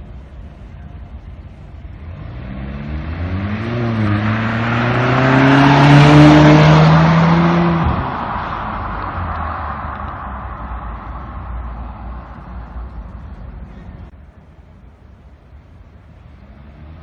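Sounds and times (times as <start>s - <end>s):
car engine accelerating: 1.9s - 14.1s.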